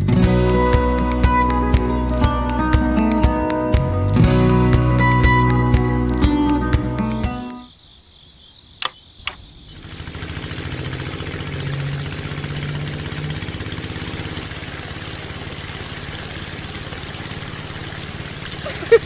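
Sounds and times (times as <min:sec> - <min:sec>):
sharp clicks: 0:01.0 - 0:07.7, 0:08.8 - 0:09.5
small motor running with pulsing: 0:09.7 - 0:19.0.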